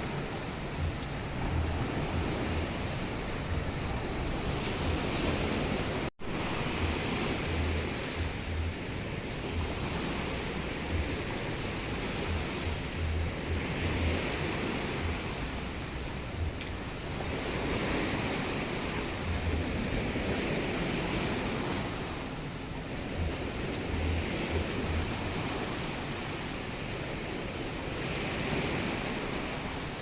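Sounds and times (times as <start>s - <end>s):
low rumbles: 0.0s - 14.4s
ocean surf: 0.0s - 30.0s
steady rain: 0.0s - 30.0s.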